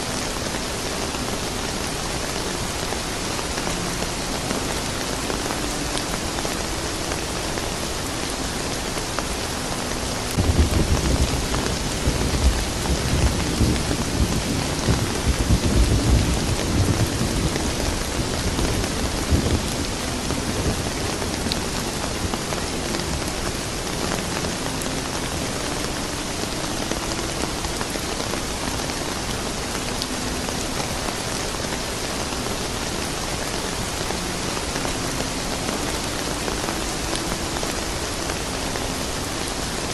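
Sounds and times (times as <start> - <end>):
steady rain falling: 0.0 - 39.9
low rumble of thunder: 10.4 - 22.4.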